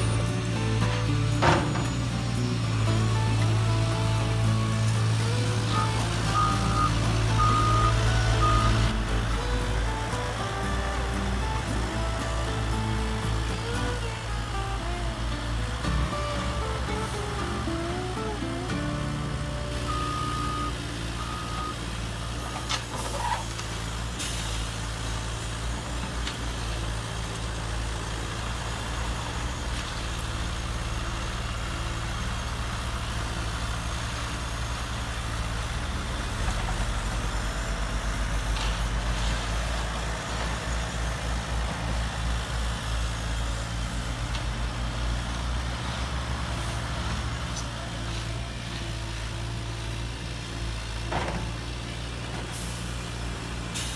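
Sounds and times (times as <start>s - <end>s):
simulated diesel engine drone: 0.0s - 53.9s
reversing beeps: 4.4s - 9.0s, 19.4s - 22.8s.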